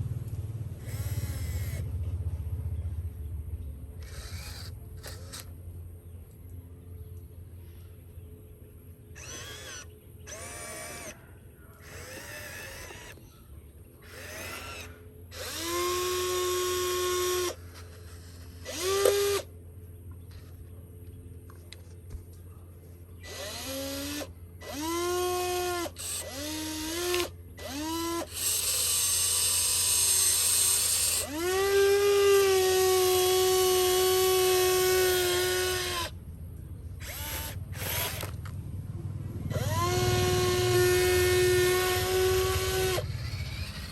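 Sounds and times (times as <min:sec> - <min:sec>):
small electric motor whirring: 0:00.7 - 0:02.0, 0:04.0 - 0:05.7, 0:09.1 - 0:13.4, 0:14.0 - 0:19.5, 0:23.2 - 0:36.2, 0:37.0 - 0:38.5, 0:39.5 - 0:43.9.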